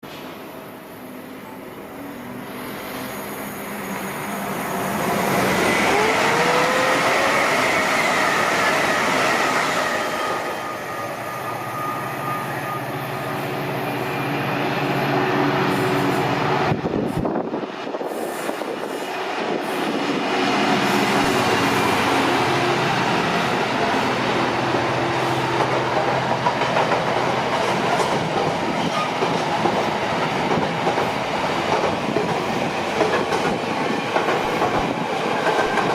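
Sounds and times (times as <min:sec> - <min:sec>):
diesel locomotive engine: 0:00.0 - 0:35.9
train wheels clattering on rails: 0:24.7 - 0:35.9.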